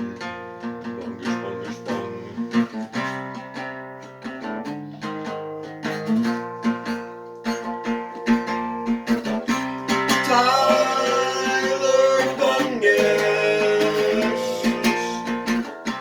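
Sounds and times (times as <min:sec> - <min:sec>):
acoustic guitar strumming: 0:00.0 - 0:16.0
person singing: 0:09.9 - 0:15.7.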